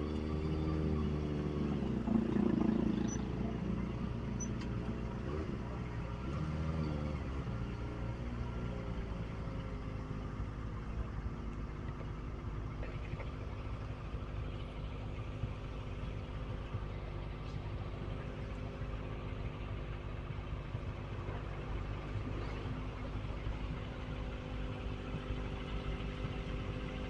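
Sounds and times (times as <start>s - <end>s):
motorcycle engine idling: 7.5s - 27.0s.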